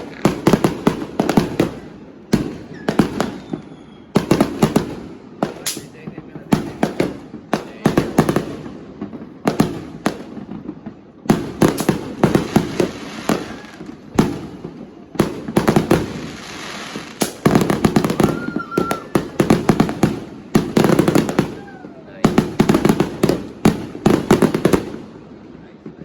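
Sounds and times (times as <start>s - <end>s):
firecrackers banging and crackling: 0.0s - 26.0s
firework whistle: 2.6s - 4.3s, 12.8s - 13.9s, 16.3s - 19.6s.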